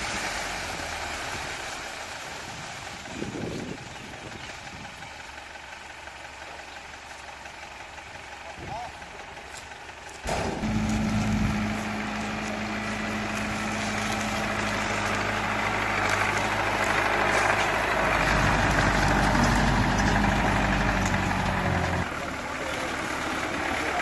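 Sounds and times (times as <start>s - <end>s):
tractor engine running: 0.0s - 24.0s
harvester machinery rushing noise: 10.0s - 24.0s.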